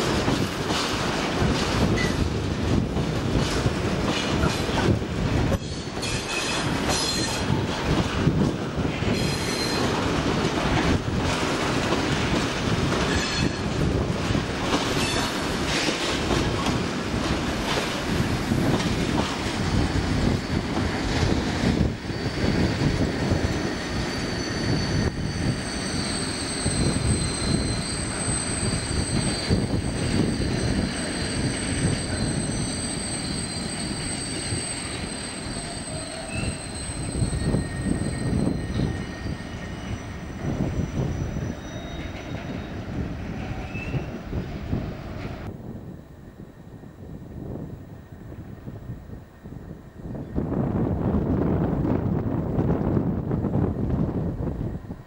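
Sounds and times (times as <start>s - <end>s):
train wheels rumbling and knocking: 0.0s - 46.1s
high-pitched wheel squeal: 21.3s - 44.2s.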